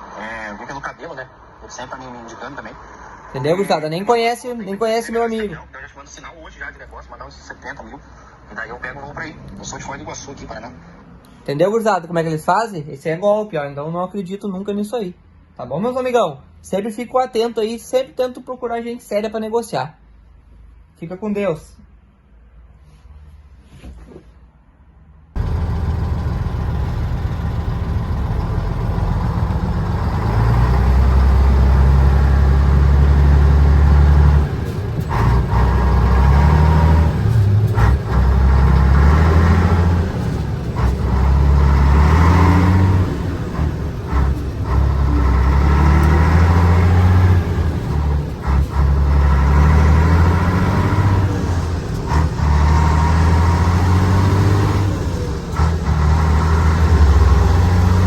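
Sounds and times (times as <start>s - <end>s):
truck diesel engine revving: 25.4s - 58.0s.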